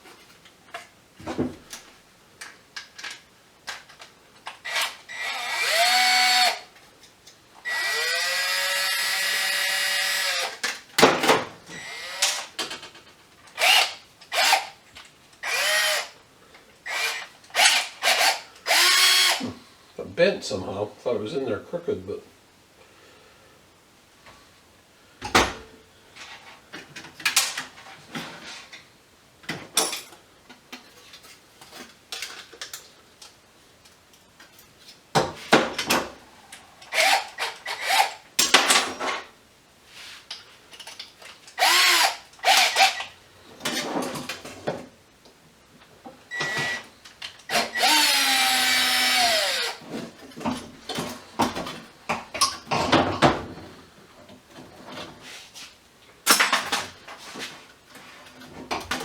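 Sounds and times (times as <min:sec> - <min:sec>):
power drill whining: 0:04.6 - 0:06.7, 0:07.6 - 0:10.6, 0:11.7 - 0:12.5, 0:13.6 - 0:14.8, 0:15.4 - 0:16.2, 0:16.8 - 0:19.5, 0:36.9 - 0:38.2, 0:41.6 - 0:43.1, 0:46.3 - 0:46.9, 0:47.5 - 0:49.8.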